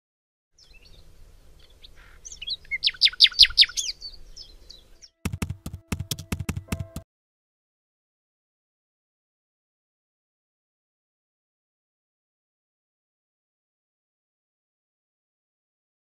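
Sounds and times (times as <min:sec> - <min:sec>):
birds singing: 0:00.6 - 0:05.2
rapid sharp taps: 0:05.3 - 0:07.0.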